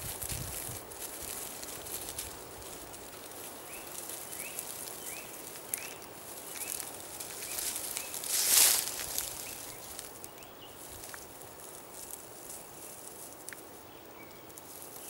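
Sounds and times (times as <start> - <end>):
rustling in leaf litter: 0.0 - 15.0
small bird chirping: 3.4 - 11.2.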